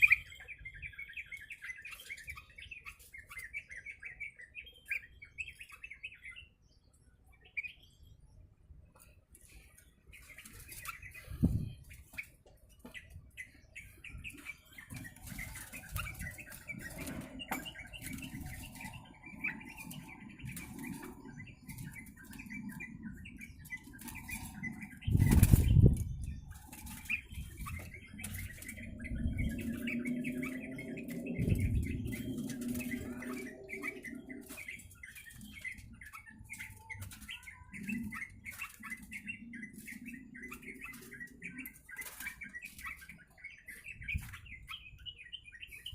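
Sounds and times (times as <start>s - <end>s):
bird chirping: 0.0s - 45.9s
bird wings flapping against cage: 23.6s - 43.2s.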